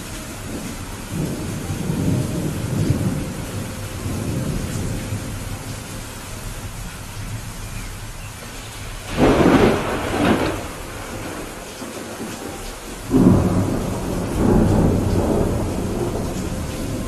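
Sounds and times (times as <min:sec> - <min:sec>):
steady rain: 0:00.0 - 0:17.0
thunder clap and rumble: 0:00.0 - 0:17.0.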